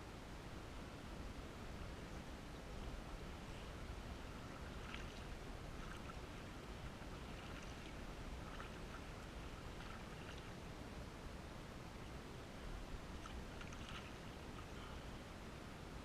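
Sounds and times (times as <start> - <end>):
low steady rumble: 0.0 - 16.0
paddle splashes and drips: 4.4 - 10.6, 13.2 - 15.0.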